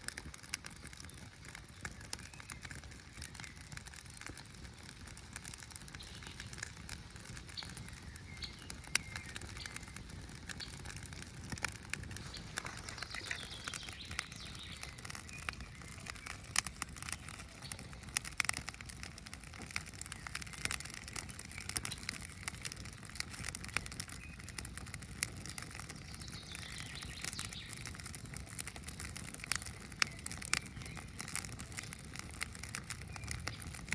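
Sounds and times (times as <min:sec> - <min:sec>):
campfire crackling and popping: 0:00.0 - 0:33.9
bird chirping: 0:07.5 - 0:10.9, 0:12.1 - 0:18.2.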